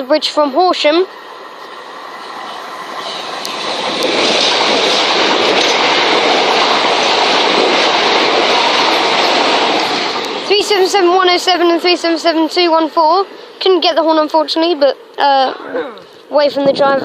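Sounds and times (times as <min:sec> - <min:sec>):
electric train passing at speed: 0:00.0 - 0:17.0.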